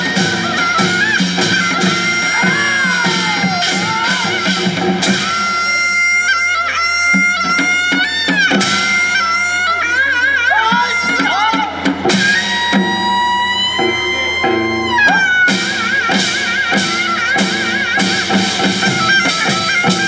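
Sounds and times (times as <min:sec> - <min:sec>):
drum strokes: 0:00.0 - 0:06.1, 0:10.8 - 0:20.0
wavering melody instrument: 0:00.0 - 0:20.0.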